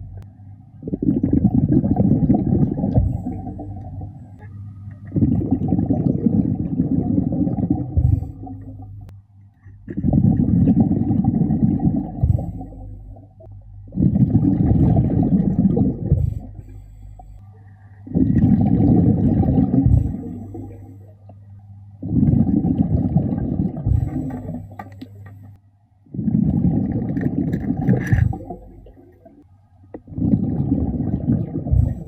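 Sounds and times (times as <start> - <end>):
diver exhaling bubbles: 0.8 - 4.4, 5.0 - 9.1, 9.9 - 13.3, 13.9 - 16.8, 18.0 - 21.2, 22.0 - 24.8, 26.1 - 29.4, 30.0 - 32.0.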